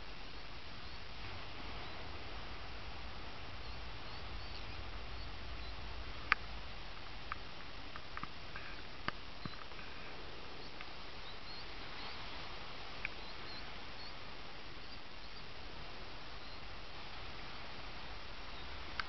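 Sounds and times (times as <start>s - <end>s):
steady hiss: 0.0s - 19.0s
shorebirds squeaky chirps: 3.6s - 5.8s, 13.1s - 14.2s.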